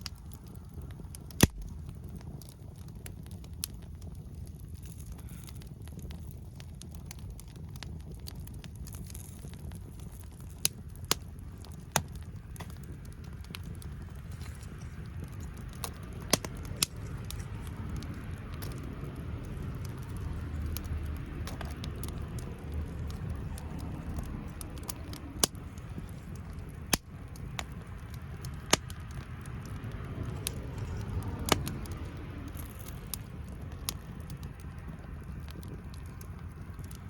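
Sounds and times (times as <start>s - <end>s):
low steady rumble: 0.0s - 37.0s
wood fire crackling: 0.0s - 37.0s
sharp pops: 1.3s - 1.8s.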